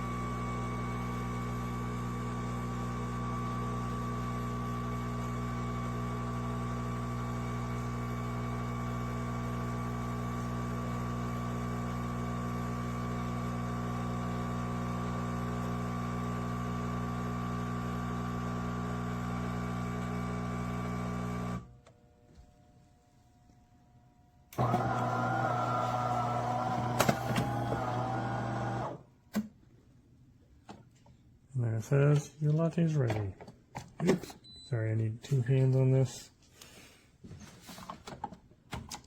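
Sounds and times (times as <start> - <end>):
espresso machine humming: 0.0 - 21.7, 24.6 - 29.0.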